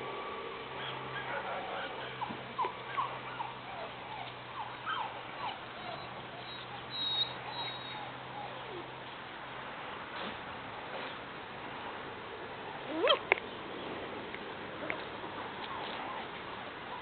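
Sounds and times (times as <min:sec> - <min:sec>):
puppies whimpering: 0:00.8 - 0:08.9.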